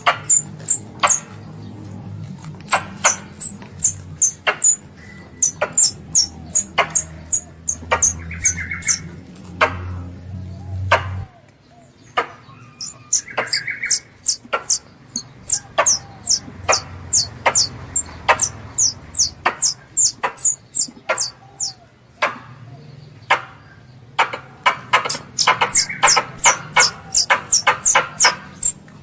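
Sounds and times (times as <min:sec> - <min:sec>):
high downward-sliding chirps: 0:00.0 - 0:01.4, 0:02.5 - 0:09.2, 0:12.6 - 0:21.8, 0:25.0 - 0:28.8
sharp clicking calls: 0:00.0 - 0:10.2, 0:10.8 - 0:29.0.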